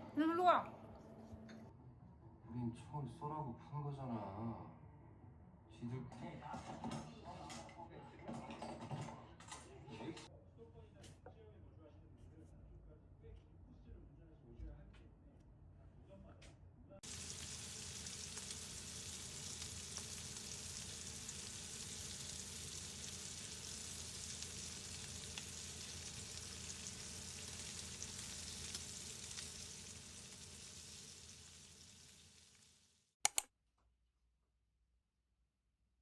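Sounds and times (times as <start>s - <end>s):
food sizzling in frying pan: 17.0s - 33.0s
sharp clicks: 33.2s - 33.5s.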